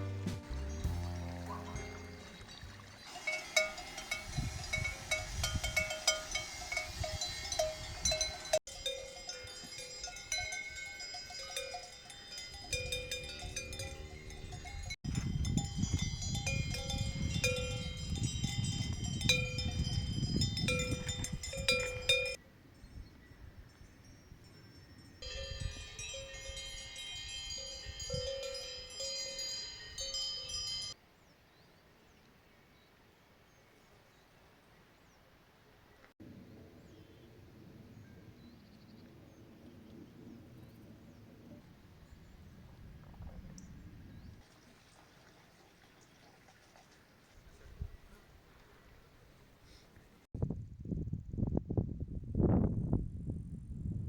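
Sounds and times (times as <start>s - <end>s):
cowbells clanking: 0.9s - 22.4s, 24.4s - 31.0s
wind rumbling on microphone: 3.9s - 8.6s, 12.6s - 24.0s, 36.2s - 44.4s, 50.3s - 54.0s.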